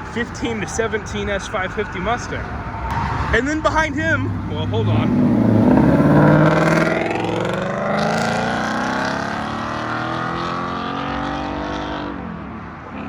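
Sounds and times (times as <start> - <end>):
car engine accelerating hard: 2.8 - 13.0.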